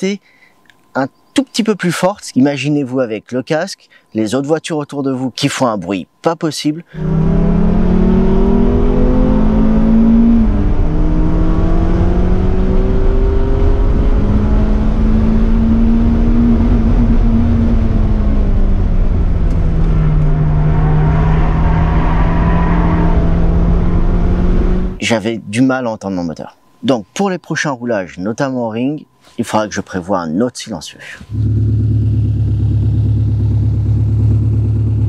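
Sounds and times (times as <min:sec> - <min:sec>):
car engine revving: 0:06.9 - 0:25.0, 0:31.3 - 0:35.0
road and wind noise: 0:07.0 - 0:25.7, 0:31.2 - 0:35.0.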